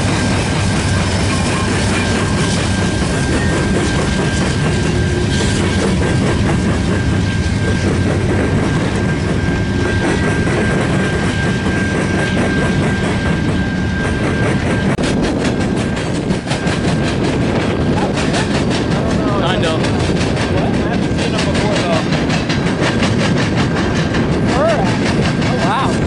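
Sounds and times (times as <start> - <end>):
diesel locomotive engines running: 0.0 - 26.0
wheels clattering over rail joints: 14.8 - 26.0.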